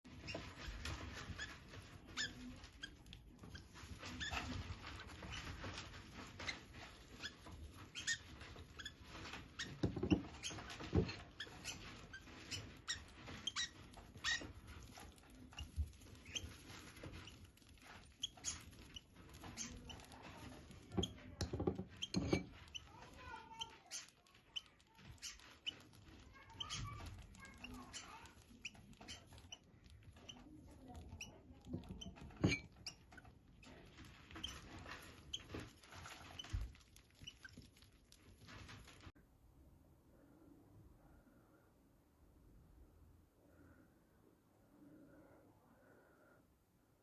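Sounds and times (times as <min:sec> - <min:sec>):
faint squeaky chirps: 0:00.1 - 0:39.1
bird feet tapping on cage: 0:00.2 - 0:39.0
beaks clicking on seed: 0:06.4 - 0:39.0.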